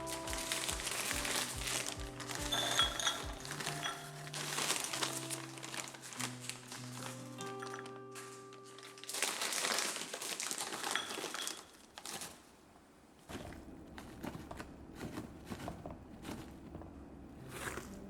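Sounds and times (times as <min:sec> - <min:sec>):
soft background music: 0:00.0 - 0:10.6, 0:17.2 - 0:18.0
packaging crinkling and rustling: 0:00.0 - 0:18.0.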